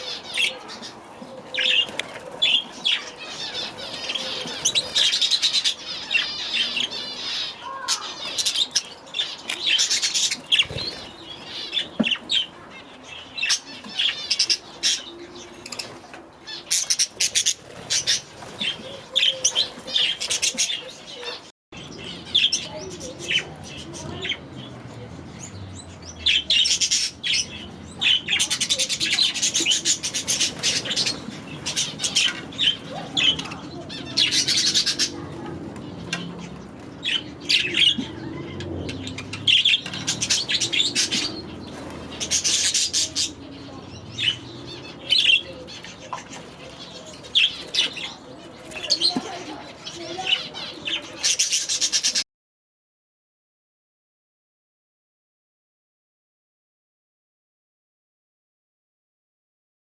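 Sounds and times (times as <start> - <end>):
budgerigars chirping: 25.4 - 35.2, 36.1 - 48.2.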